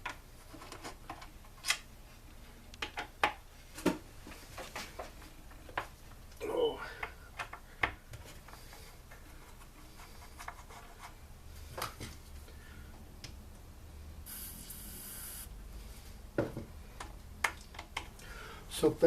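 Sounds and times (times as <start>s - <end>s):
aerosol spray hiss: 14.3s - 15.5s.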